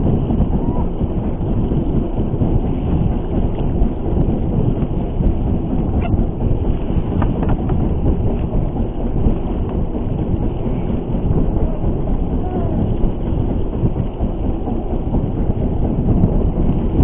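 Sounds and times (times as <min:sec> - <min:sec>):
boat low rumble: 0:00.0 - 0:17.0.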